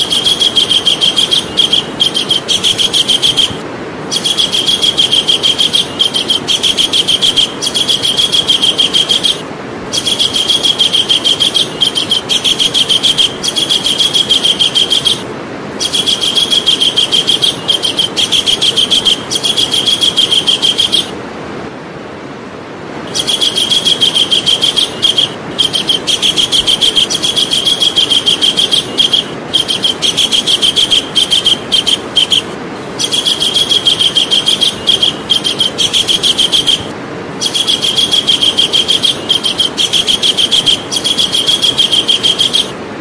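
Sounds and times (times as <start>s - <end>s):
kingfisher rattling trills: 0.0s - 21.2s, 23.0s - 42.8s.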